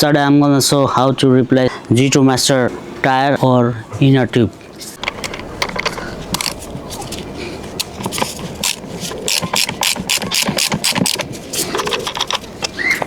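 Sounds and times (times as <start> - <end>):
mechanical clicks and rattles: 7.8 - 13.0.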